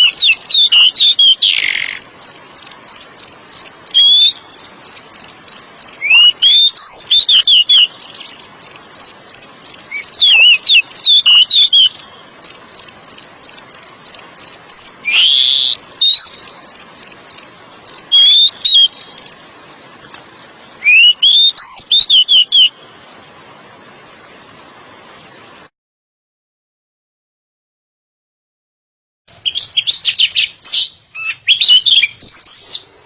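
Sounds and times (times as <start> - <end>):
bird singing whistled phrases: 0.0 - 2.0, 3.9 - 4.6, 5.9 - 8.8, 9.7 - 17.2, 17.9 - 19.4, 20.8 - 22.8, 29.3 - 32.9
faint hiss: 0.0 - 25.7.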